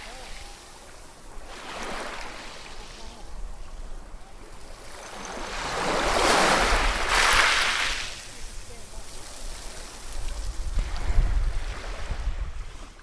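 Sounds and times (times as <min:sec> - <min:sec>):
low rumble of surf: 0:00.0 - 0:13.0
wave breaking: 0:04.8 - 0:12.3.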